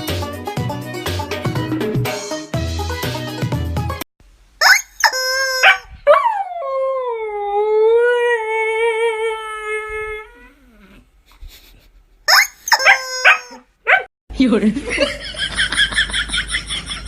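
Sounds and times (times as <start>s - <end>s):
dog yelping: 4.6s - 6.4s, 12.3s - 14.1s
dog howling: 5.0s - 11.0s, 12.7s - 14.1s.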